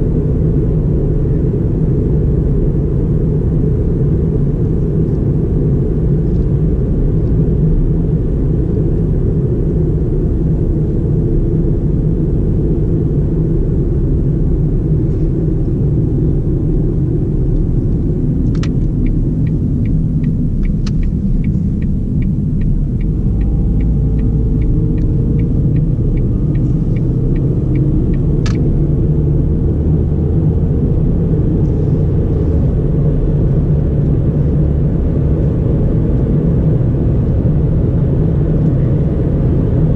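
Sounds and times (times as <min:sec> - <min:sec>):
car engine and road rumble: 0:00.0 - 0:39.9
turn signal ticking: 0:17.5 - 0:29.5
turn signal switch click: 0:18.5 - 0:28.7.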